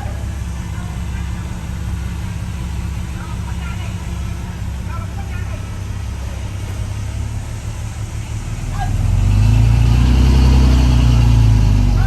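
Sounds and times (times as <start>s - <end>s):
heavy diesel engine revving: 0.0s - 12.0s.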